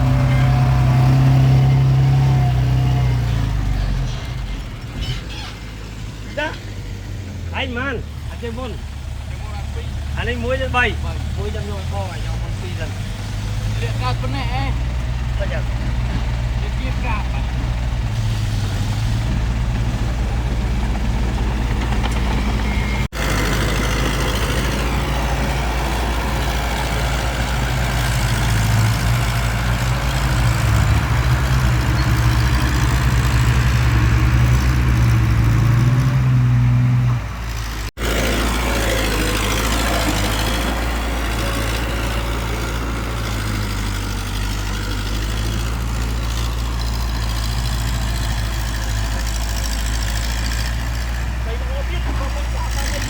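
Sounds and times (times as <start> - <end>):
heavy diesel engine running: 0.0 - 53.0.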